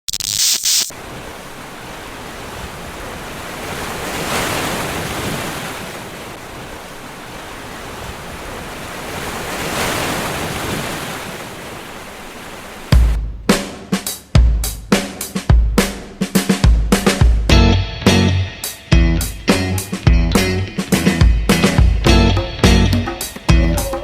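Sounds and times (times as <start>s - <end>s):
short loud hiss: 0.1s - 0.9s
ocean surf washing ashore: 0.9s - 14.3s, 18.5s - 24.0s.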